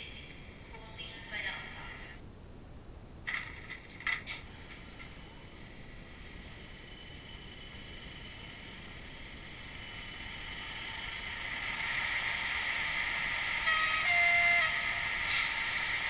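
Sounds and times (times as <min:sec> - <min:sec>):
model train running sound: 0:03.3 - 0:16.0
two-note train horn: 0:13.6 - 0:15.7.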